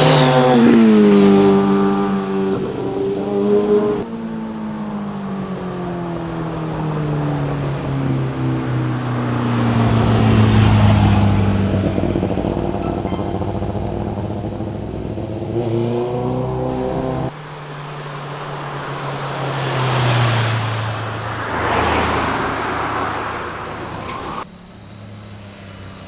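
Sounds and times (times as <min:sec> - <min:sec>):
motorcycle passing by: 0:00.0 - 0:26.0.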